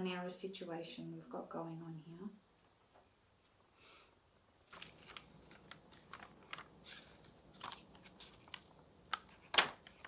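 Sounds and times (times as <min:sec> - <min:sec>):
paper rustling and clicking: 0:04.6 - 0:10.0.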